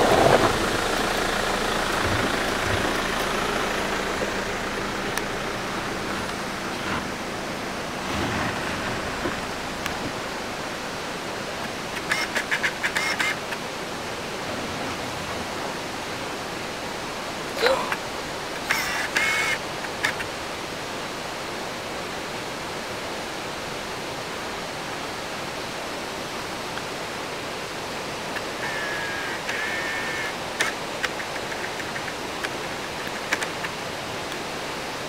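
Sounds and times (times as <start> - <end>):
waterfall rushing: 0.0 - 35.0
faint clicks: 30.6 - 34.4.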